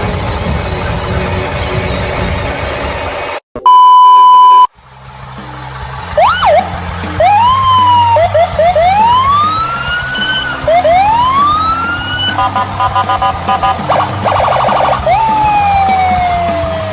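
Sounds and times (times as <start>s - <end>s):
noisy rumble: 0.0s - 3.4s, 4.7s - 16.9s
loud steady beep: 3.6s - 4.7s, 8.6s - 15.3s
electronic siren whooping: 6.1s - 16.9s.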